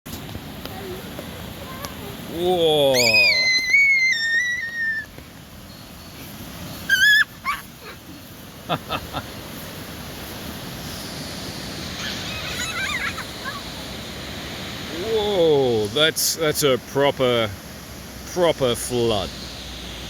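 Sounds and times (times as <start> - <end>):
rushing floodwater: 0.1 - 20.0
dog whining and yipping: 6.9 - 8.0.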